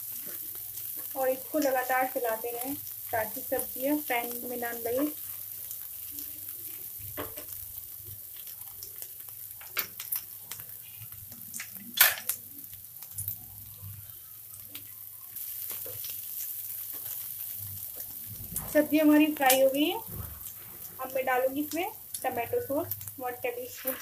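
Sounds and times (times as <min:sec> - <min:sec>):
vegetables sizzling in a pan: 0:00.0 - 0:24.0.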